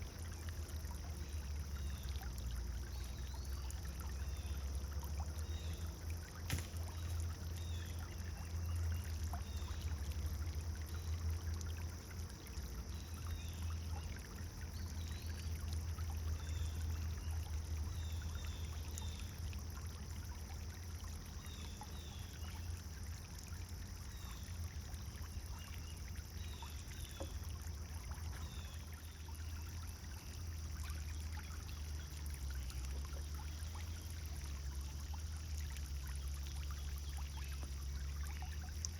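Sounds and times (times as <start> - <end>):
fountain splashing: 0.0 - 13.5.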